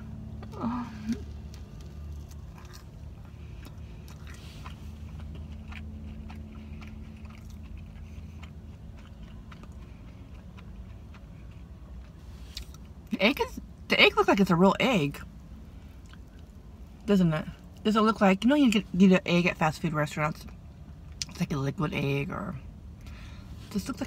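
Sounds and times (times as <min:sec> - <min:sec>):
steady low hum: 0:00.0 - 0:24.0
person chewing with crunches: 0:00.1 - 0:13.1, 0:15.6 - 0:17.0.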